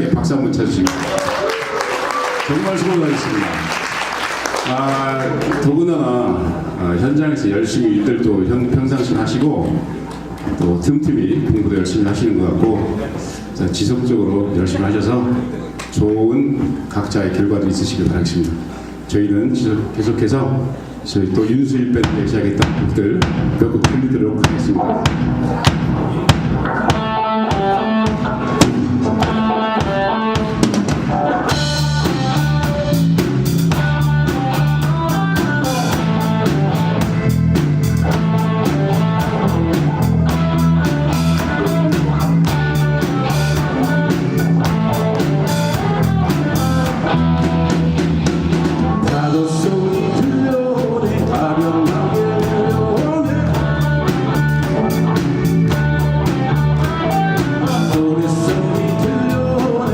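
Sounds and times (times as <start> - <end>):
drum kit: 21.9 - 59.9
live band playing instrumental: 22.0 - 59.9.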